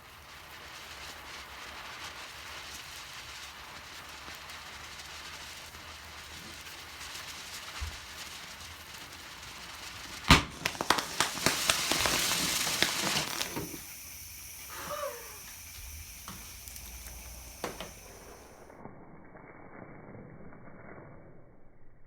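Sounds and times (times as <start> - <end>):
crackling popping hiss: 0.0 - 21.1
rocket motor bang: 10.3 - 13.9.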